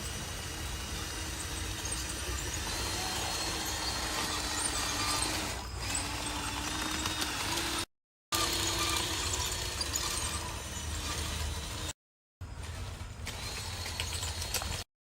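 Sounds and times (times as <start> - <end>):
small electric motor whining: 0.0 - 12.0.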